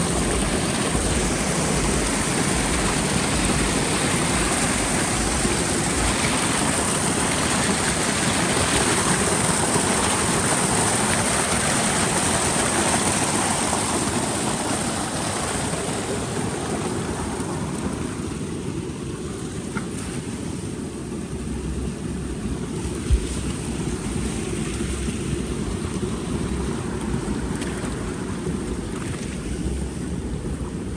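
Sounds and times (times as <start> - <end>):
rain falling: 0.0 - 15.1.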